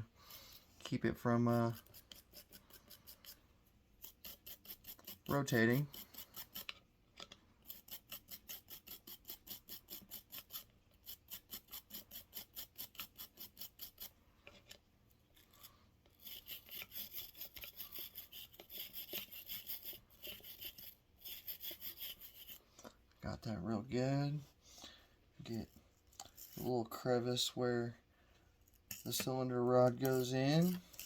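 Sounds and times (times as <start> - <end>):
brush scrubbing metal: 0.4 - 3.4, 4.0 - 6.8, 7.6 - 14.2, 15.4 - 22.7, 25.5 - 27.8, 28.9 - 31.0.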